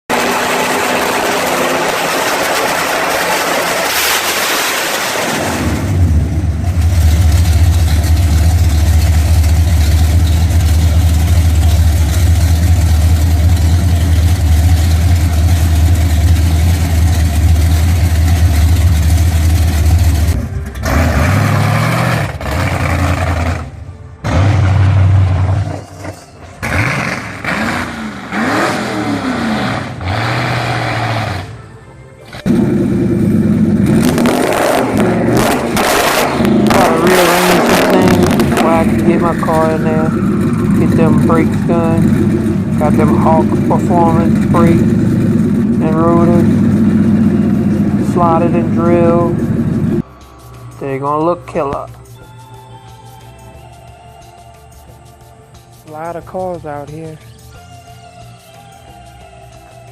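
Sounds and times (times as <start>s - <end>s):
car engine revving: 0.0s - 52.0s
car engine starting and running: 0.0s - 52.3s, 54.1s - 57.4s.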